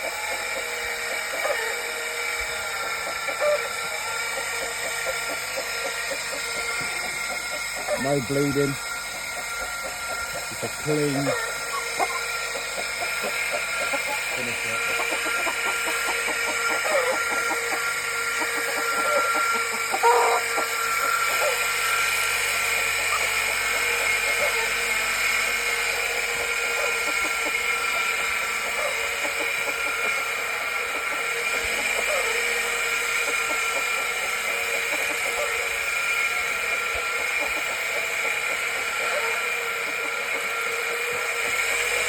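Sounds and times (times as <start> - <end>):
chickens clucking: 0.0 - 42.0
grinder whining: 0.0 - 42.0.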